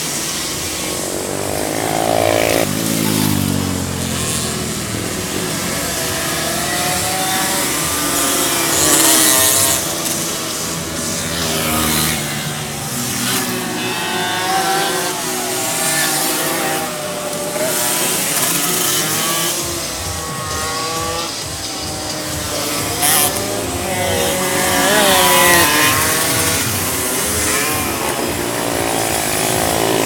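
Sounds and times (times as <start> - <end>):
cars passing by: 0.0 - 30.0
racing car engines revving: 0.0 - 30.0.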